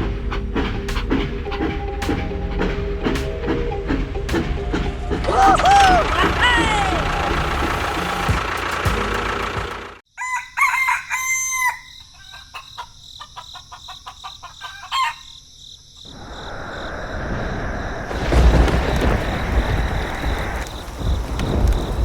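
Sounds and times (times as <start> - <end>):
rooster crowing: 5.3 - 7.9, 10.1 - 15.4
steady hissing noise: 16.0 - 18.4.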